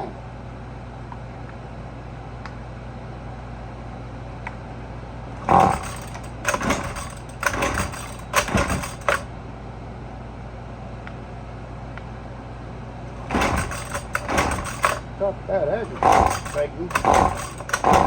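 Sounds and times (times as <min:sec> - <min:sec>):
recoil cord whirr: 0:05.4 - 0:09.3, 0:13.1 - 0:15.1, 0:15.8 - 0:18.0.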